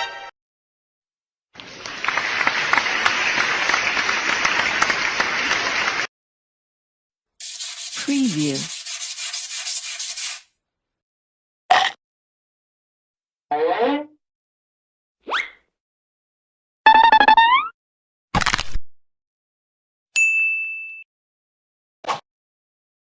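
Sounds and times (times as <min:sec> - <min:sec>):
sliding voice-like sound: 0:07.8 - 0:08.8.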